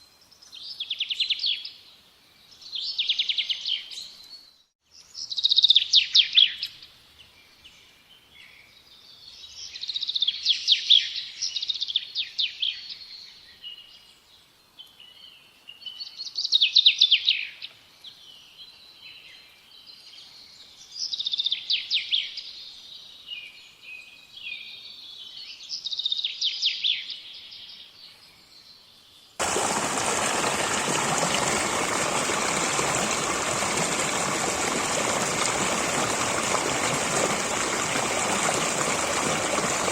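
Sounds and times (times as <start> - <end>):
songbird singing: 0.0 - 39.9
stream rushing: 29.4 - 39.9.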